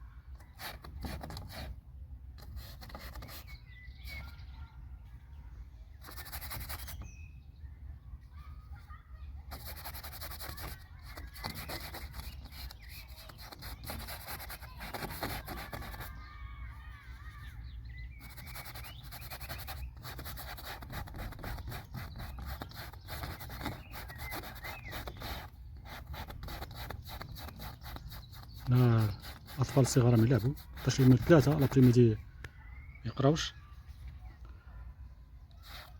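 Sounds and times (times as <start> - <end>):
paintbrush scraping: 2.4 - 4.3, 6.0 - 7.1, 9.5 - 16.4, 18.1 - 32.2, 35.5 - 35.9.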